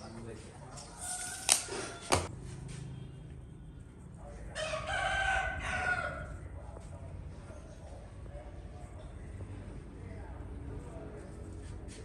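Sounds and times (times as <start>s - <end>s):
rooster crowing: 1.2s - 2.3s, 4.6s - 6.4s.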